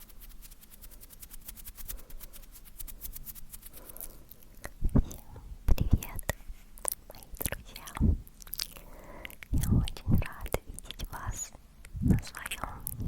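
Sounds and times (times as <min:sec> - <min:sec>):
wet mouth clicks: 0:04.3 - 0:11.1.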